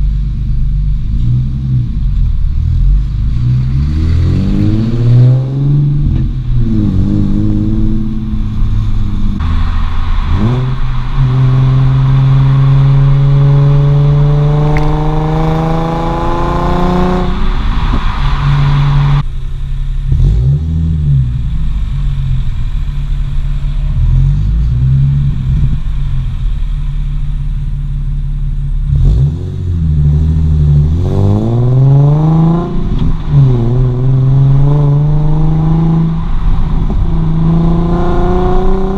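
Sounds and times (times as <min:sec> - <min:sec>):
car engine revving through gears: 0:01.0 - 0:19.3, 0:20.0 - 0:21.6, 0:28.7 - 0:38.9.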